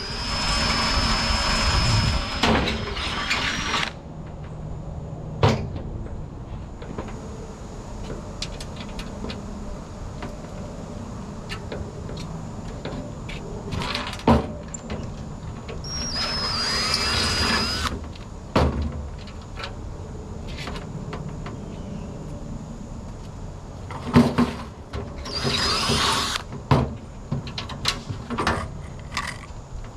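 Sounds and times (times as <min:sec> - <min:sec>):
small power tool spinning up: 0:00.0 - 0:04.0, 0:15.9 - 0:18.0, 0:25.3 - 0:26.5.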